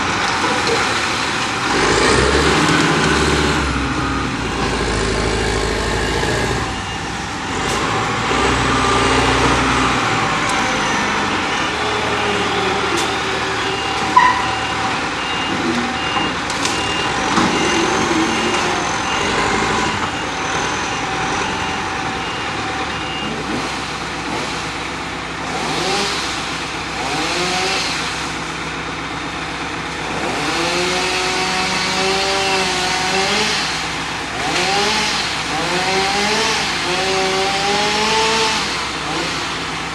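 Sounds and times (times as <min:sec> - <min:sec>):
diesel engines running: 0:00.0 - 0:39.9
reversing beeper: 0:03.6 - 0:23.5.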